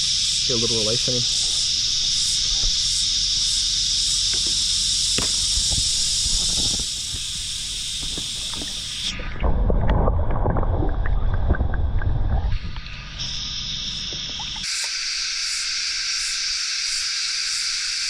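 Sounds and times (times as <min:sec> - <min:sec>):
cicada chorus buzzing: 0:00.0 - 0:09.4, 0:12.6 - 0:18.0
muffled underwater sloshing and bubbling: 0:06.3 - 0:14.7.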